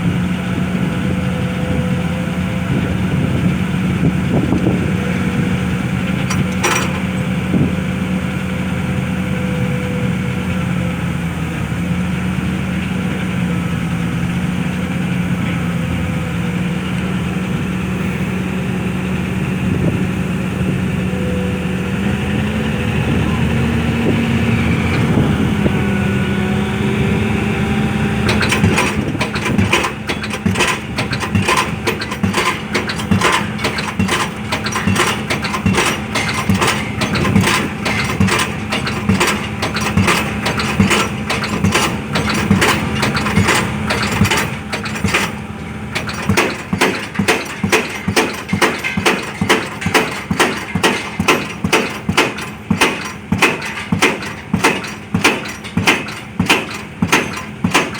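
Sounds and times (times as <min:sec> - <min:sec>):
engine running: 0:00.0 - 0:57.9
pile-driving hammer striking: 0:06.2 - 0:07.2, 0:28.2 - 0:57.9.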